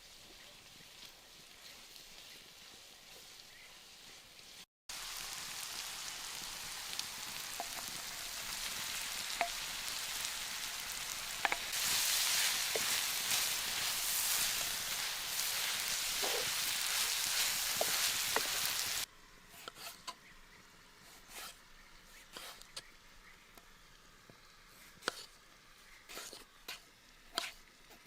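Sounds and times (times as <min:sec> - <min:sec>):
food sizzling in a frying pan: 0:00.0 - 0:19.1.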